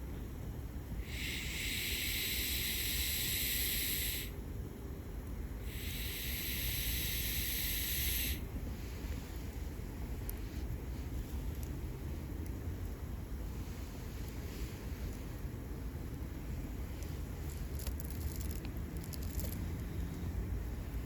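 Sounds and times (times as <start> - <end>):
steady low rumble: 0.0 - 21.0
long hissing bursts: 0.8 - 4.5, 5.5 - 11.2.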